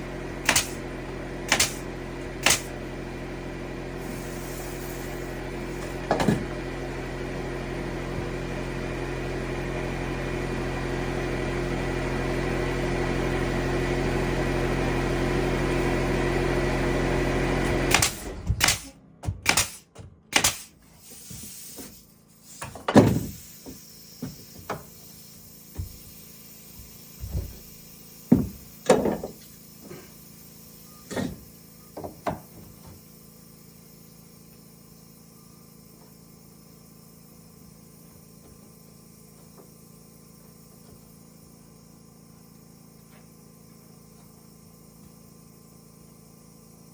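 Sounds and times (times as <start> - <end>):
machine humming: 23.0 - 38.7.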